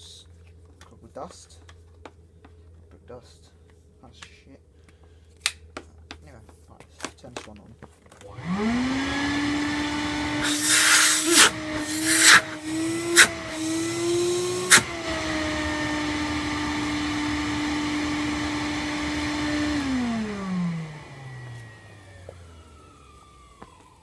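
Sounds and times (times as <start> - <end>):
vacuum motor whining: 8.2 - 24.0.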